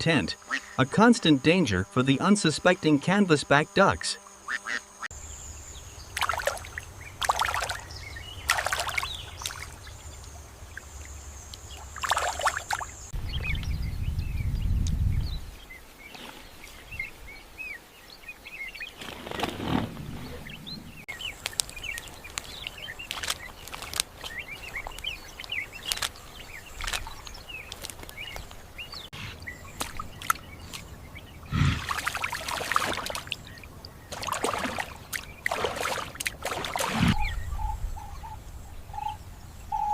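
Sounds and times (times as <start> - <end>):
steady high hiss: 0.0 - 13.2
bird chirps: 20.2 - 39.9.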